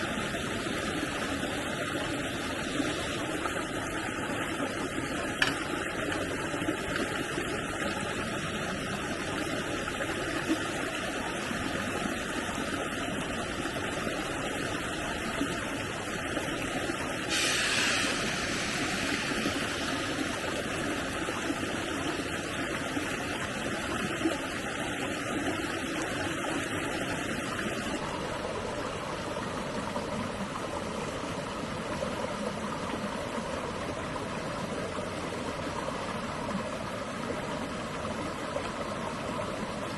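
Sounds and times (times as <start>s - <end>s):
stream water flowing: 0.0s - 39.9s
loud hiss: 17.3s - 20.4s.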